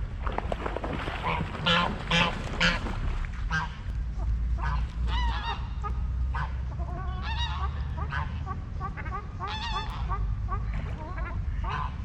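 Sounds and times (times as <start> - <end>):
steady low rumble: 0.0 - 12.0
geese honking: 1.3 - 2.8, 4.6 - 12.0.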